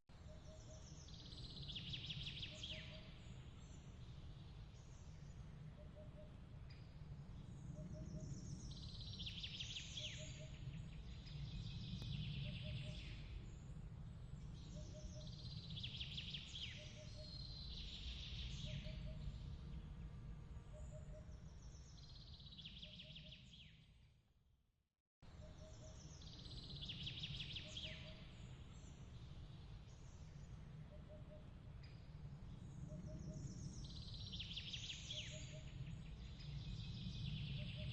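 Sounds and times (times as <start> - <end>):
low steady rumble: 3.0 - 22.0.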